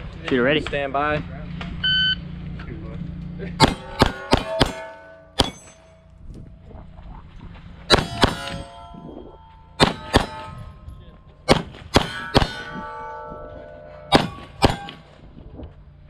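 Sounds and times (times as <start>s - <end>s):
pistol shots: 3.6s - 5.8s, 7.9s - 8.6s, 9.8s - 10.6s, 11.5s - 12.7s, 14.1s - 15.0s
steel plates ringing: 3.6s - 6.2s, 7.9s - 15.4s.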